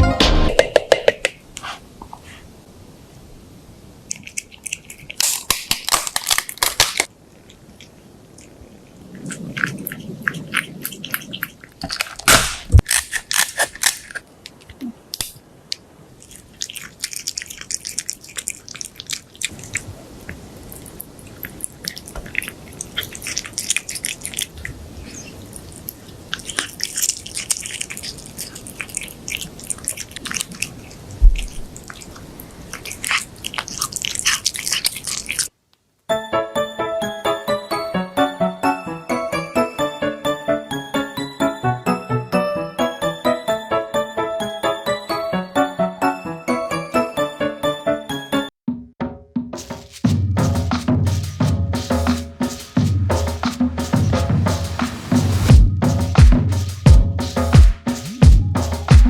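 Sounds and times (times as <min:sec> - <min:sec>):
crunchy chewing and biting: 0:04.1 - 0:15.3, 0:16.2 - 0:35.6.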